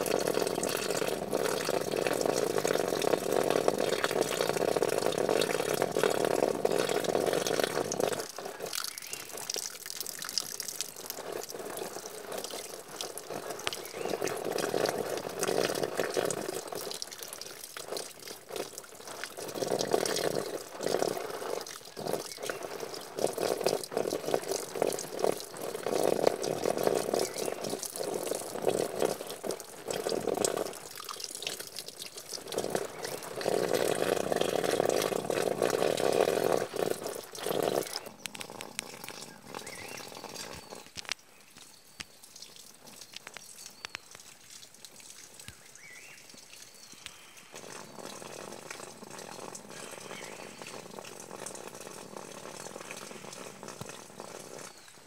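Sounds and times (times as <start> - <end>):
running water: 0.0 - 55.0.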